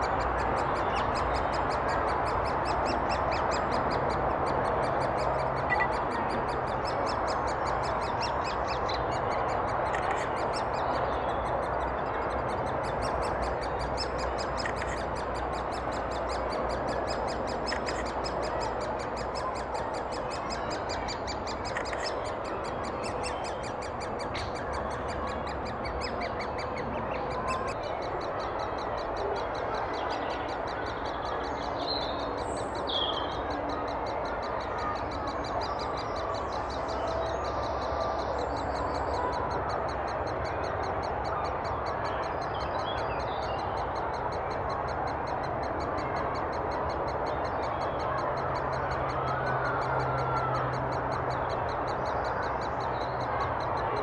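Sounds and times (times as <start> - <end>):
bird calls: 0.0 - 39.6
outdoor background noise: 0.0 - 54.0.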